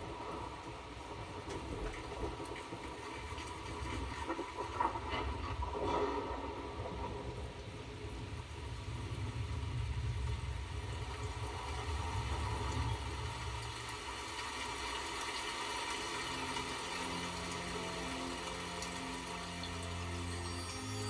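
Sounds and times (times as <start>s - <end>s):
low engine-like rumble: 0.0s - 14.8s
faint steady hum: 0.0s - 21.0s.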